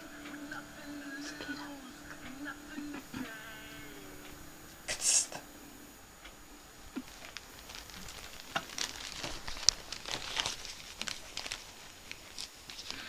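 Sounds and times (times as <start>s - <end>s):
paper crinkling and rustling: 7.0s - 13.0s.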